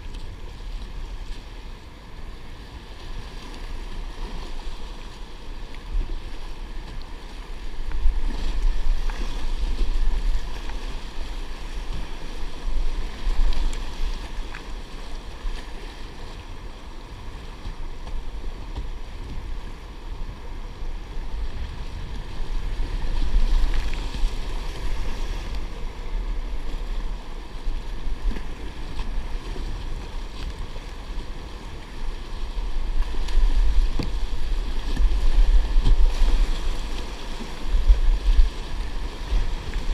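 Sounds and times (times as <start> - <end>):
water washing around kayak: 0.0 - 39.9.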